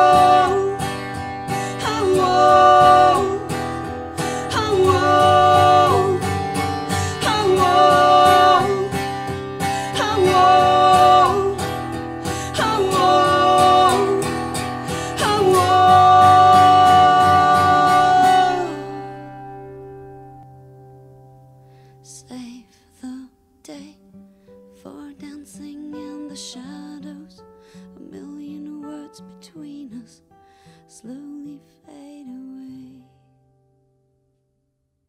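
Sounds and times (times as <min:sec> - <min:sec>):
held wordless singing: 0:00.0 - 0:19.1
strummed acoustic guitar: 0:00.0 - 0:22.0.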